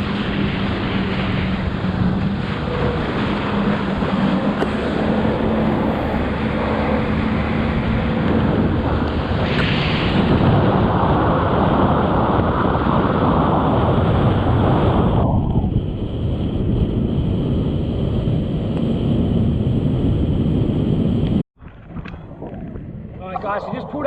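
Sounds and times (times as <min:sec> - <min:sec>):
jet ski engine: 0:00.0 - 0:14.6
wind buffeting microphone: 0:00.0 - 0:24.0.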